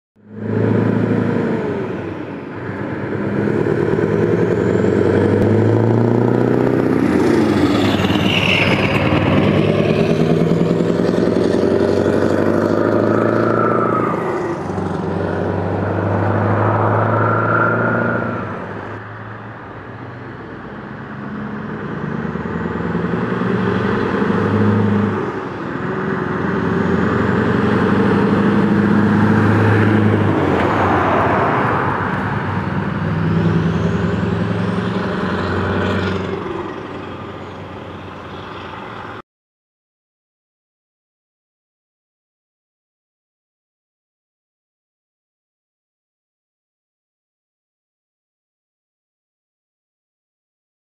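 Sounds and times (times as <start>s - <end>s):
diesel truck engine revving: 0.2s - 39.2s.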